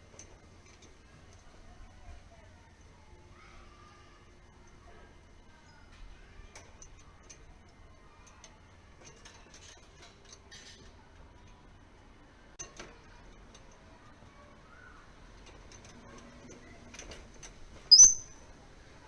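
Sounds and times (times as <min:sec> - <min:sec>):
faint scattered clicks: 0:12.5 - 0:18.6.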